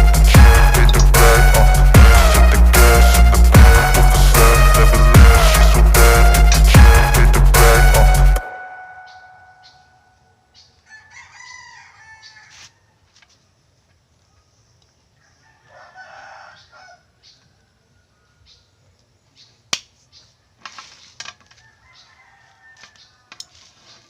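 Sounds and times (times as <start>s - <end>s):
rooster crowing: 10.8s - 13.0s, 15.2s - 17.8s, 21.6s - 23.4s.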